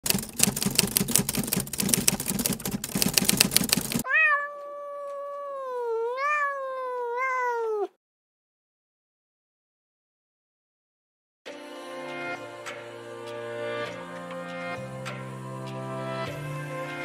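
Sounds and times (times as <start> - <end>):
rapid clicking and crackling: 0.0 - 4.0
cat meowing: 4.0 - 8.0.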